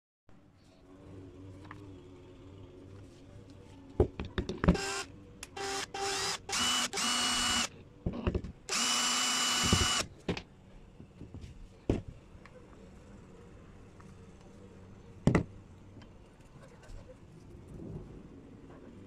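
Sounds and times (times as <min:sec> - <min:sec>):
electric drill whining: 0:04.7 - 0:07.7, 0:08.7 - 0:10.1.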